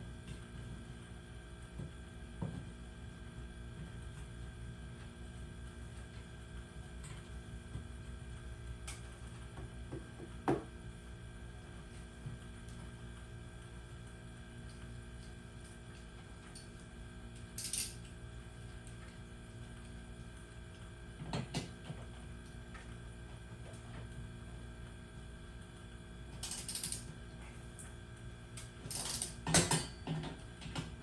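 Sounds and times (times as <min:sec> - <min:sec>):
steady low hum: 0:00.0 - 0:31.0
mechanical clicks and rattles: 0:17.5 - 0:18.1, 0:26.4 - 0:27.1.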